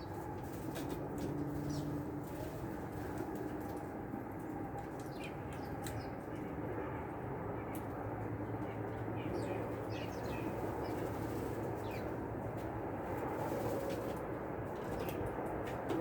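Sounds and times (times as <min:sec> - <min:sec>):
small birds chirping: 0:00.0 - 0:15.6.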